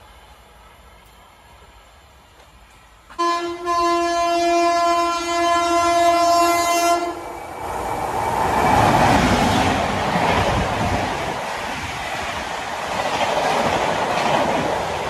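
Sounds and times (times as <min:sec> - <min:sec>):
train rushing and rumbling: 0:00.0 - 0:15.0
locomotive horn blast: 0:03.1 - 0:07.2.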